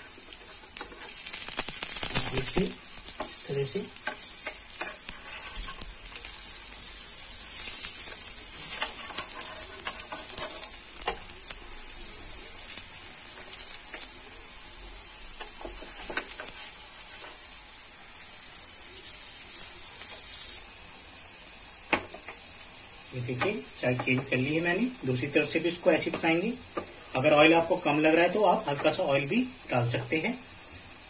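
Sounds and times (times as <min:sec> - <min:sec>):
patties sizzling in oil: 0:00.0 - 0:31.0
steel spatula scraping pan: 0:04.0 - 0:05.9, 0:08.6 - 0:10.8.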